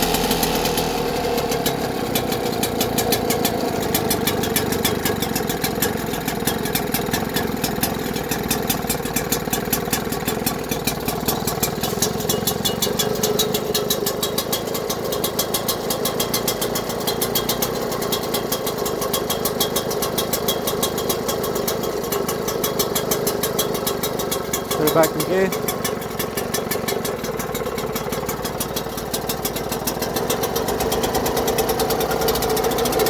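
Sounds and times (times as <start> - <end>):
outboard motor running: 0.0 - 33.0.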